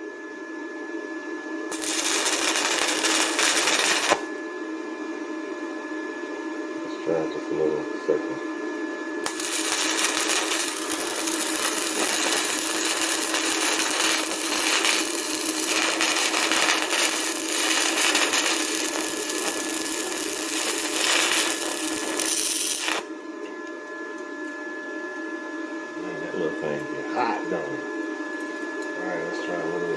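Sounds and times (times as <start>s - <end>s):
welding arc crackling: 1.7s - 4.3s, 9.2s - 23.1s.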